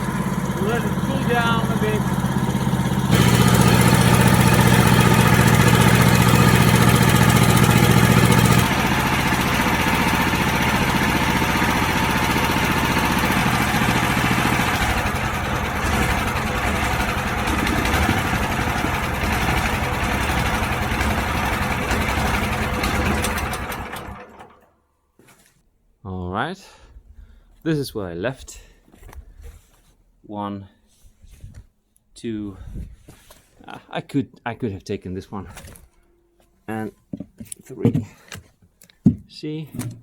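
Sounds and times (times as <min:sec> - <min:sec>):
wood chipper engine running: 0:00.0 - 0:24.8.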